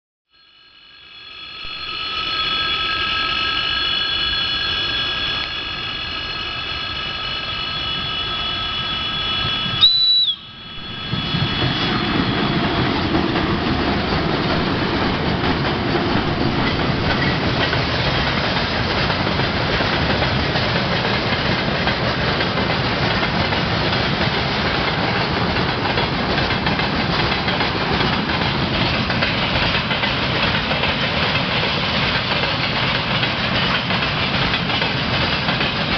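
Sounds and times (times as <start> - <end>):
locomotive whistle: 0.5 - 13.0
train wheels rumbling on rails: 0.7 - 35.9.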